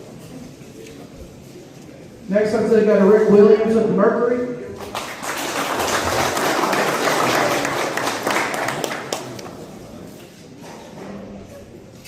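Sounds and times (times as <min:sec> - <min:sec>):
crowd applauding: 0:04.8 - 0:09.8.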